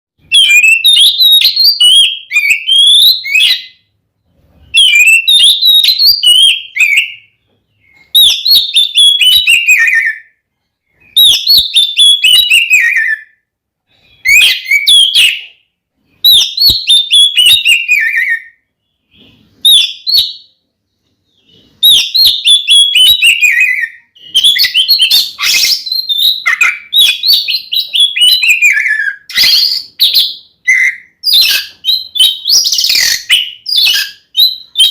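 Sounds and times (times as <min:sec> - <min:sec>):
songbird whistles and trills: 0:00.2 - 0:20.6, 0:21.2 - 0:34.9.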